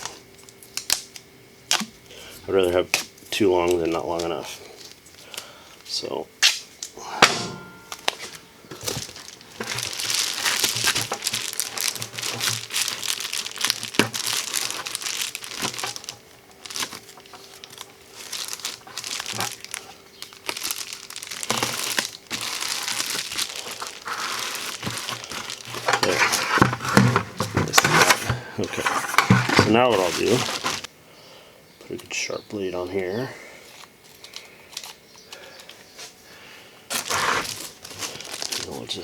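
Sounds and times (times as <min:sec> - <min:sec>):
foil insulation crinkling: 0:00.0 - 0:06.0, 0:07.6 - 0:30.9, 0:36.9 - 0:39.0.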